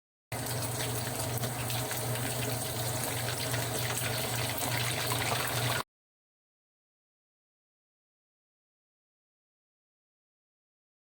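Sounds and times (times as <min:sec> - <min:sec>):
water running: 0:00.3 - 0:05.8.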